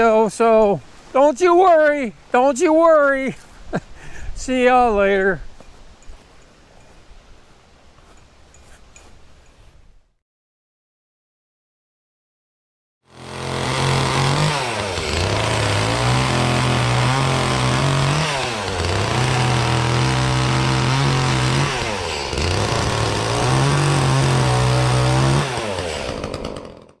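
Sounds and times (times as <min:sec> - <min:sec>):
chainsaw running at high revs: 0:13.1 - 0:27.0.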